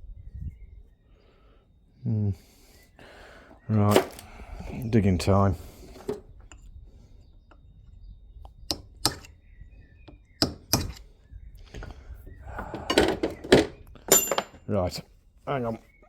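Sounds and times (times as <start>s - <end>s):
hammer striking chisel: 8.7s - 9.3s, 10.4s - 11.0s.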